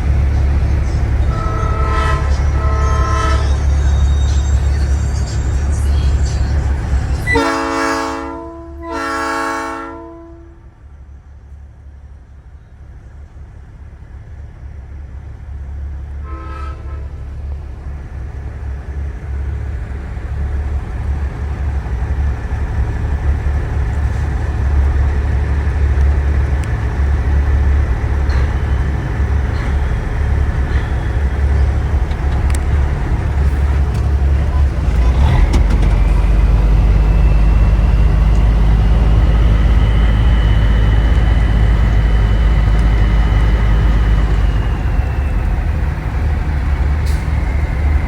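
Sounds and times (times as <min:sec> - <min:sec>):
truck engine droning: 0:00.0 - 0:48.0
air horn toot: 0:01.3 - 0:03.9, 0:07.2 - 0:10.6, 0:16.2 - 0:17.2.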